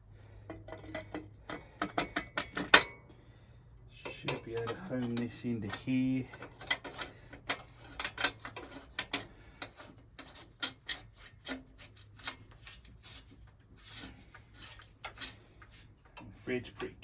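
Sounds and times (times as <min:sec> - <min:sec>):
light metal scraping: 0:04.0 - 0:17.0.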